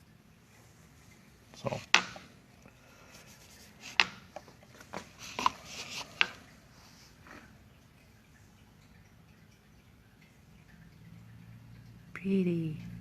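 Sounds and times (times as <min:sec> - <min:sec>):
clicks and knocks of hard objects: 0:01.6 - 0:02.3, 0:03.8 - 0:06.4
rubbing and scraping: 0:03.0 - 0:07.5.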